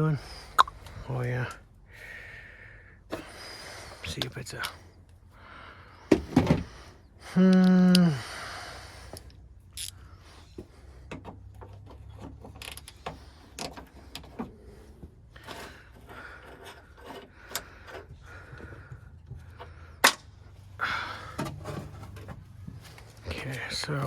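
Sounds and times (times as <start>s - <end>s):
tools clicking and knocking: 9.1s - 10.0s, 11.1s - 14.6s.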